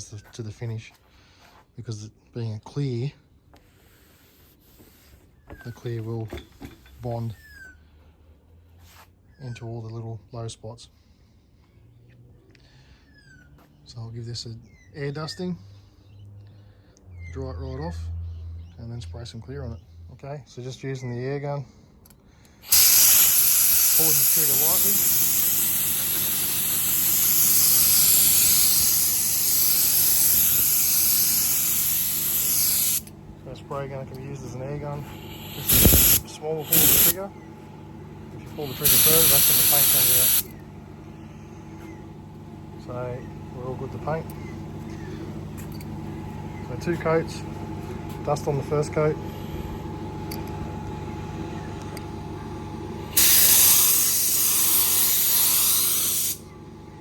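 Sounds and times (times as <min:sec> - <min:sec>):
low steady hum: 0:22.4 - 0:39.0
compressed air hissing: 0:22.6 - 0:37.4, 0:38.4 - 0:40.6, 0:53.0 - 0:56.4.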